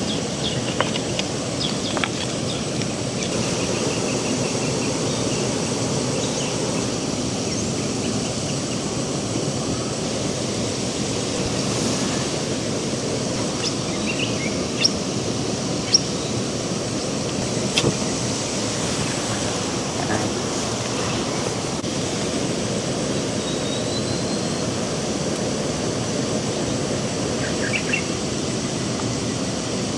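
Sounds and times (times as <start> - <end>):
rushing outdoor noise: 0.0 - 29.9
bird chirps: 3.2 - 8.8, 13.4 - 15.0.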